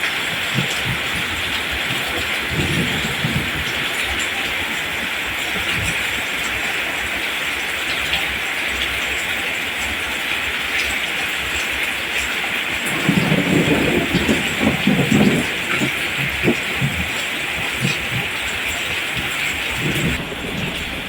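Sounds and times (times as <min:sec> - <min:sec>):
rain falling on plants: 0:00.0 - 0:21.0
low rumbling: 0:19.7 - 0:21.0.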